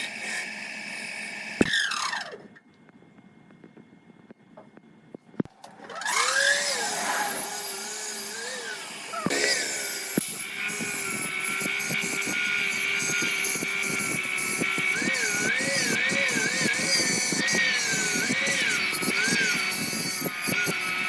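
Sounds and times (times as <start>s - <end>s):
electric power tool motor: 5.5s - 21.0s.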